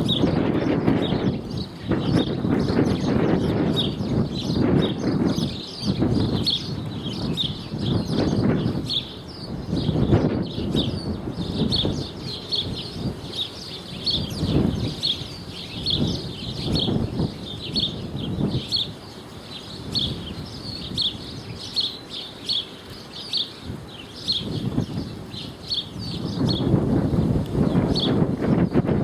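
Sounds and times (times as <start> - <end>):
gusty low rumble: 0.0 - 18.7
small birds chirping: 0.0 - 29.0.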